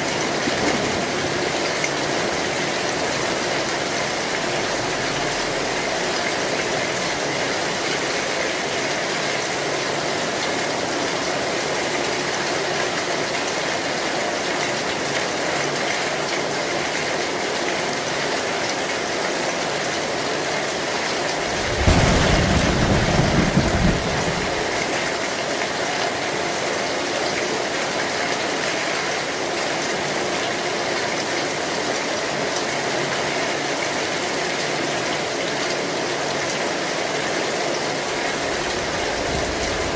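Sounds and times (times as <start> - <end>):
heavy rain on metal roof: 0.0 - 39.9
thunderclap rumbling: 21.3 - 25.3, 38.4 - 39.9.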